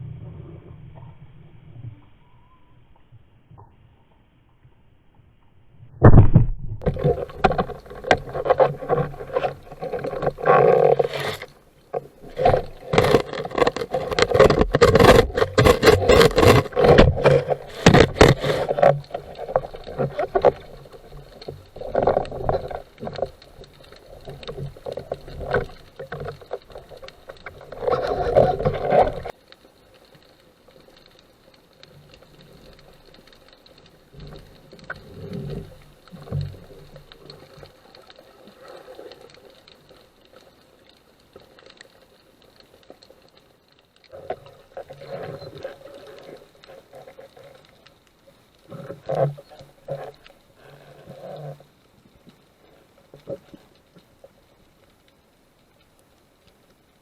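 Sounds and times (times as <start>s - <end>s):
water splashing on camera: 6.0s - 31.2s, 31.8s - 55.0s.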